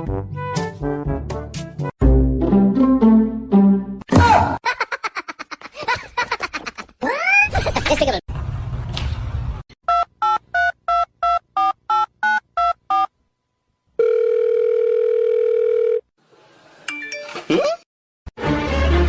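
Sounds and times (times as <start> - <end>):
steady dial tone: 14.0 - 16.0.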